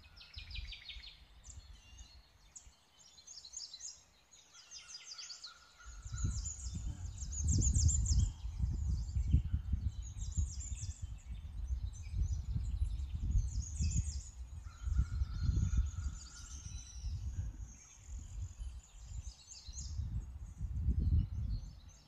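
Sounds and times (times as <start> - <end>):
small birds chirping: 0.0 - 22.0
wind buffeting microphone: 5.8 - 22.0.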